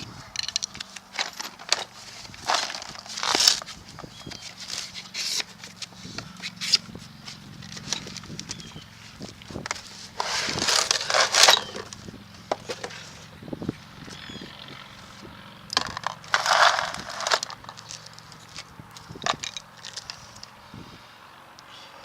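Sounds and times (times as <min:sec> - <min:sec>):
metal clinks and knocks: 0:00.3 - 0:04.4, 0:09.2 - 0:13.2, 0:15.7 - 0:20.5
hand tool rasping scrapes: 0:09.7 - 0:11.9.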